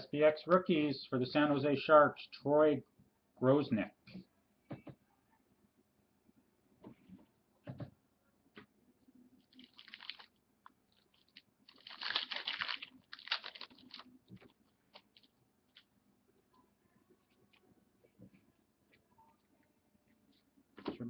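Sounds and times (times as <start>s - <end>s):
cards and packaging rustling: 9.5s - 15.9s.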